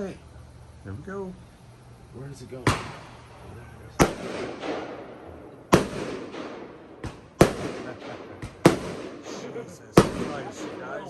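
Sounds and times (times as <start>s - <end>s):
firework bangs with crackling: 2.5s - 11.0s.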